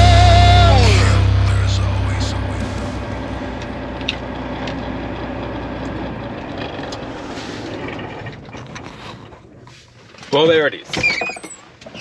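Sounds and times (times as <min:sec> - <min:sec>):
truck diesel engine idling: 0:00.0 - 0:04.5.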